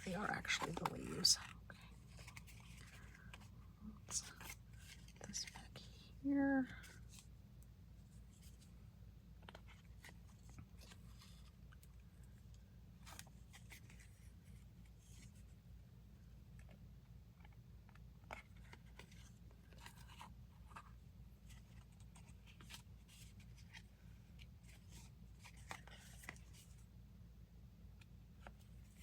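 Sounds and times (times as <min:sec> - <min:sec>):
paper rustling: 0:00.0 - 0:03.5, 0:17.4 - 0:26.8
low steady hum: 0:00.0 - 0:29.0.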